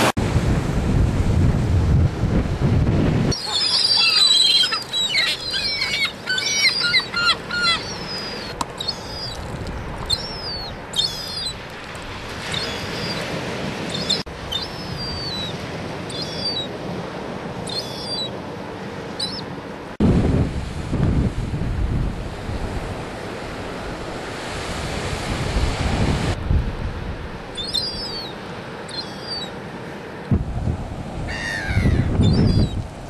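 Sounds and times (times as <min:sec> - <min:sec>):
birds calling high-pitched: 0:03.4 - 0:11.6, 0:12.5 - 0:13.3, 0:13.9 - 0:16.7, 0:17.7 - 0:18.3, 0:19.2 - 0:19.5, 0:27.6 - 0:29.5, 0:31.3 - 0:32.8.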